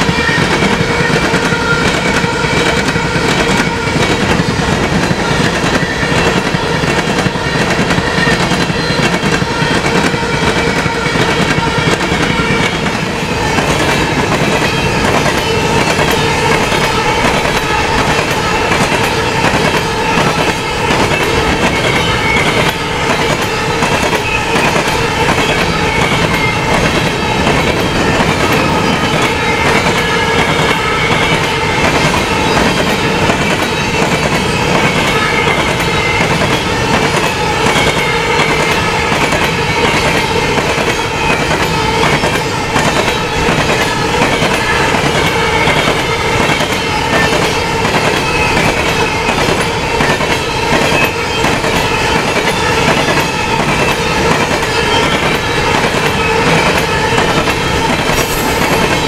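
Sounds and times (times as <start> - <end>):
ringing tone from wheels and rails: 0.0 - 59.0
train wheels clicking over rail joints: 0.0 - 59.0.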